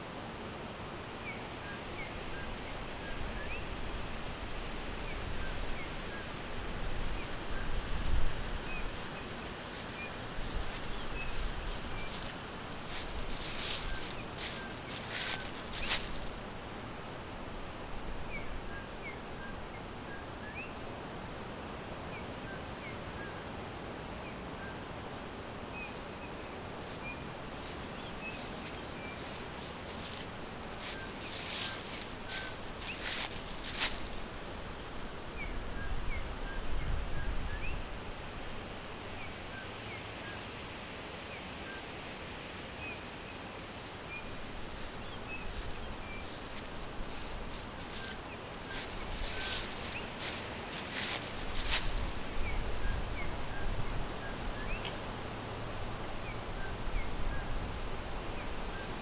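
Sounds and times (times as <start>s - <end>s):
background hiss: 0.0s - 59.0s
small birds chirping: 8.7s - 16.7s, 24.2s - 34.6s, 42.8s - 52.3s.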